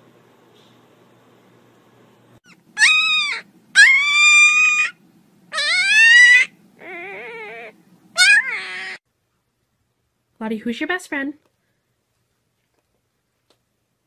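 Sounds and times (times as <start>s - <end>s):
puppy crying: 2.4s - 9.0s.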